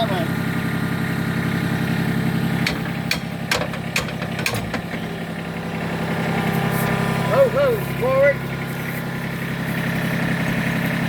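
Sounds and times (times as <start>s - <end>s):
tractor diesel engine idling: 0.0s - 11.0s
metal tapping knocks: 2.6s - 5.1s.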